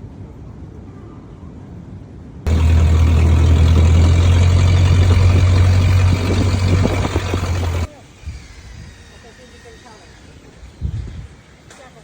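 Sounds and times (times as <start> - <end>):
engine running loudly: 2.5 - 7.9.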